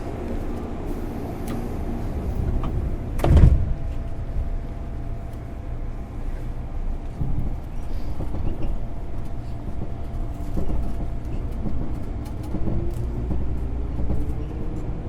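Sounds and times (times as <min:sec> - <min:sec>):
train interior hum: 0:00.0 - 0:15.0
sliding doors shutting thud: 0:01.1 - 0:04.5.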